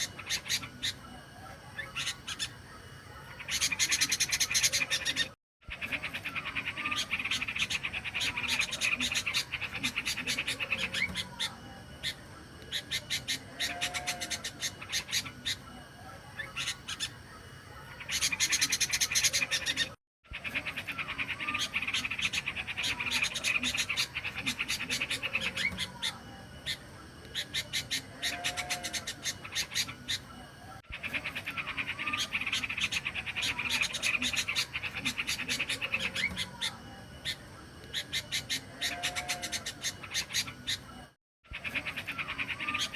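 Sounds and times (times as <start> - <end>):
recorded bird song trills: 0.0 - 42.9.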